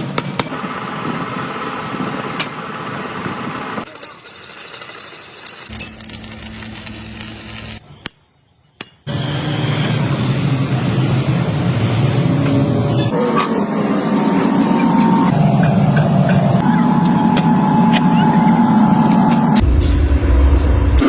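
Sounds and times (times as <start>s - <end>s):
factory machinery noise: 0.0s - 4.0s, 9.1s - 21.0s
low machine hum: 9.1s - 21.0s.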